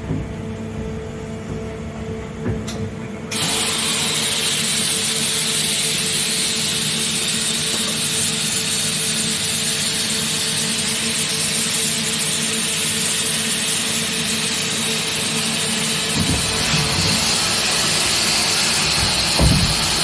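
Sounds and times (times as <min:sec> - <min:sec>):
machine hum: 0:14.8 - 0:20.0.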